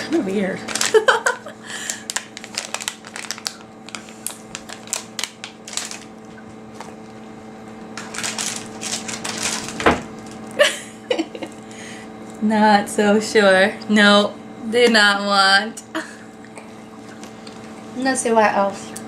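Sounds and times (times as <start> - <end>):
steady low hum: 0.0 - 19.0
plastic wrappers crinkling: 0.5 - 10.6.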